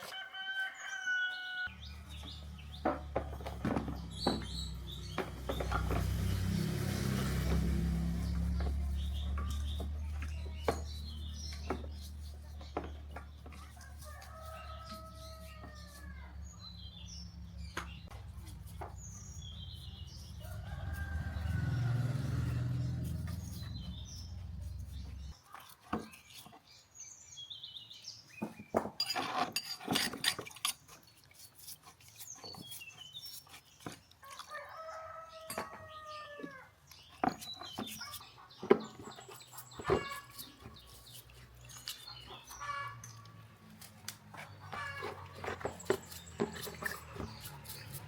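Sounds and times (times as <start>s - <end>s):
rooster crowing: 0.0s - 1.7s, 20.4s - 22.7s, 34.3s - 36.7s
small birds chirping: 0.6s - 6.4s, 7.0s - 28.8s, 30.3s - 48.0s.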